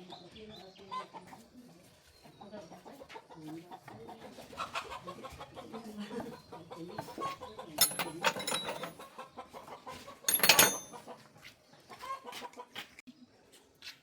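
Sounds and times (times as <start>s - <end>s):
chickens clucking: 0.9s - 7.7s, 9.1s - 10.2s, 11.8s - 12.9s
sharp metallic clanks: 7.8s - 9.0s, 10.3s - 11.0s.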